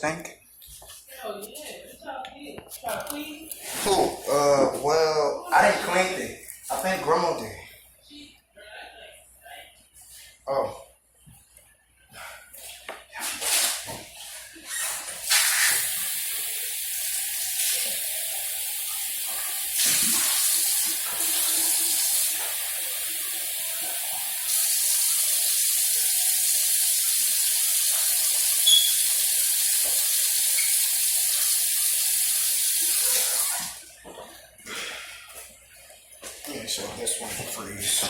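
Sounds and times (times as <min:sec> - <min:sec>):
water running from a tap: 0:14.7 - 0:33.9.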